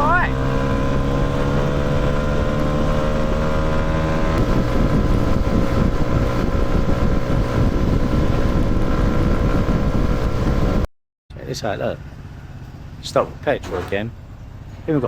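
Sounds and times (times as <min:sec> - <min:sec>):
wind buffeting microphone: 0:00.0 - 0:10.9
motorcycle engine running: 0:00.0 - 0:15.0.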